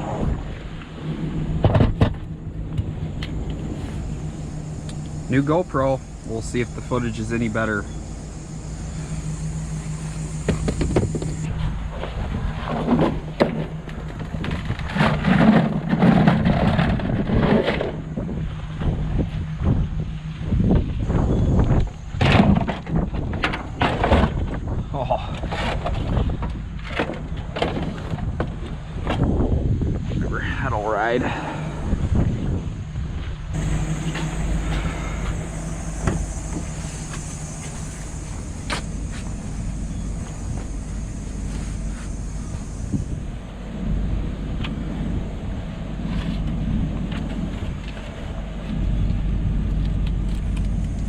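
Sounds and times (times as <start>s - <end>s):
road noise: 0.0s - 24.6s, 25.5s - 51.0s
truck engine drone: 0.0s - 51.0s.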